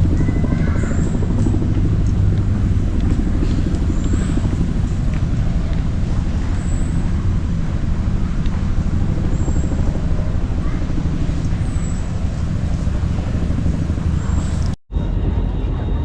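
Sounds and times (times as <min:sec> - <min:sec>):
tram rumbling along road: 0:00.0 - 0:00.5, 0:02.1 - 0:05.2, 0:12.1 - 0:14.8.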